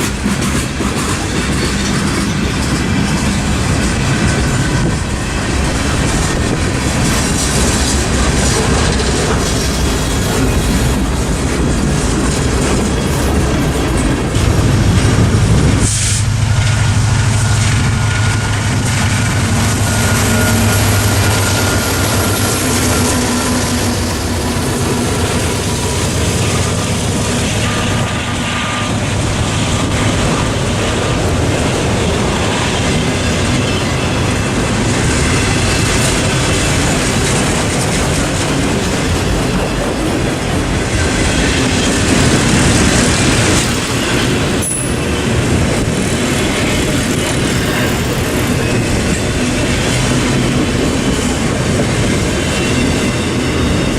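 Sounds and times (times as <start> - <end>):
train wheels clattering on rails: 0.0 - 53.9
wheel squeals: 19.6 - 26.6.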